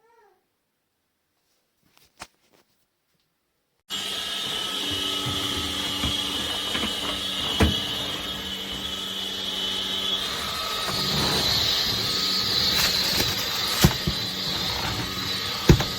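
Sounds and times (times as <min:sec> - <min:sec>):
vacuum cleaner motor whine: 0:03.9 - 0:15.9.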